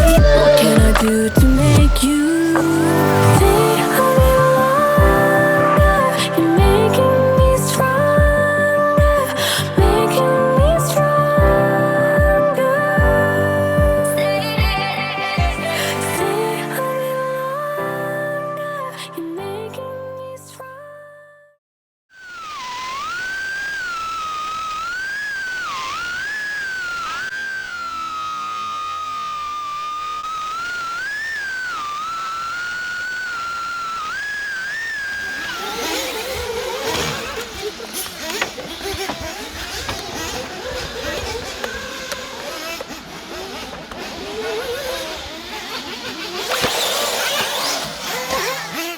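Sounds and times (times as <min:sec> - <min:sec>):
rc car motor whining: 0:00.0 - 0:05.0, 0:22.2 - 0:48.9.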